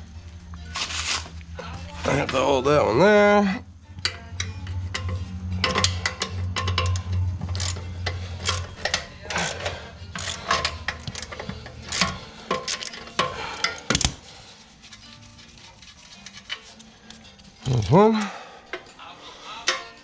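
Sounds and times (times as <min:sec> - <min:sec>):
ratchet and wrench clicking: 0:04.0 - 0:14.3, 0:14.9 - 0:17.5.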